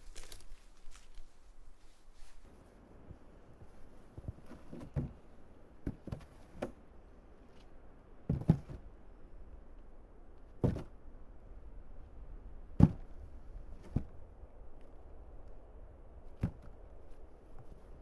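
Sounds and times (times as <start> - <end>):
irregular knocks and thuds: 8.3 - 8.8, 10.6 - 10.9, 12.8 - 13.2, 16.4 - 16.8.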